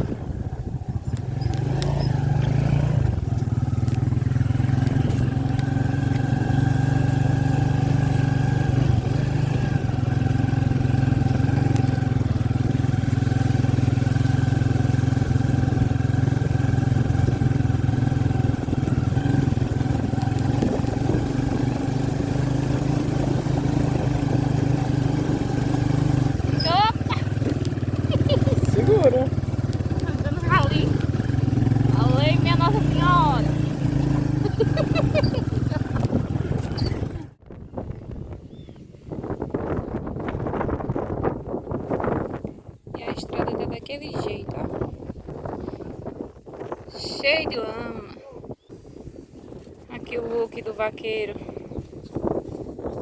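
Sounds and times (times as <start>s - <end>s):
motorcycle engine running: 0.0s - 38.2s.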